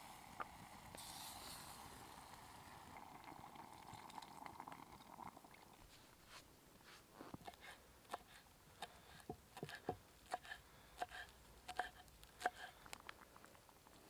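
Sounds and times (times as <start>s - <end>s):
curry simmering: 0.0s - 6.2s.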